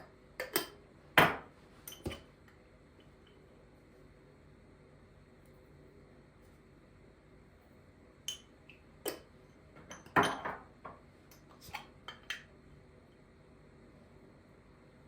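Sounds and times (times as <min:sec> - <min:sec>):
kitchenware clinking and knocking: 0:09.9 - 0:11.0.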